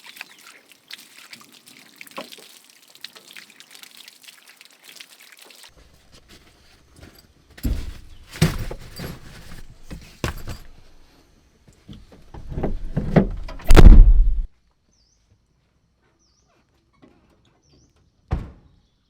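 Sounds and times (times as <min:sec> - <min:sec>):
rustling of handled objects: 0:05.7 - 0:11.1
objects knocking and thudding: 0:07.0 - 0:11.0, 0:12.0 - 0:14.5.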